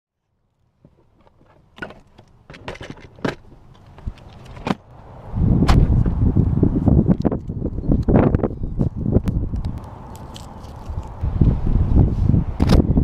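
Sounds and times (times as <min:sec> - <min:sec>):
wind buffeting microphone: 0:04.0 - 0:13.0.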